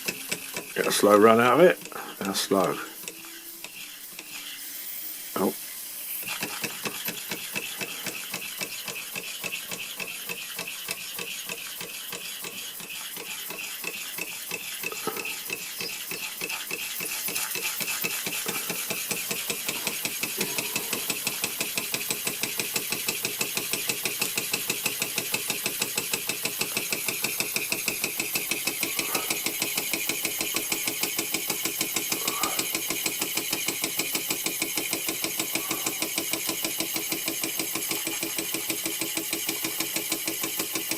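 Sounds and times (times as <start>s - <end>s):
steam hissing: 0.0s - 40.9s
toy steam engine chuffing: 0.0s - 40.9s.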